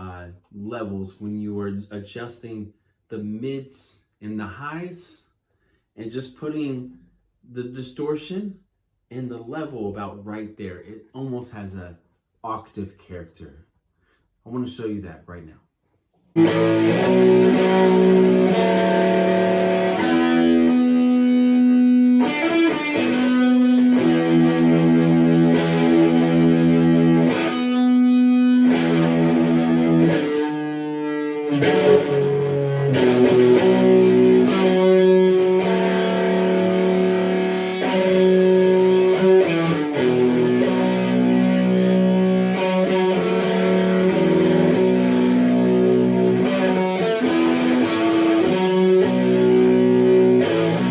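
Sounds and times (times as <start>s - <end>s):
distorted electric guitar: 16.4s - 50.9s.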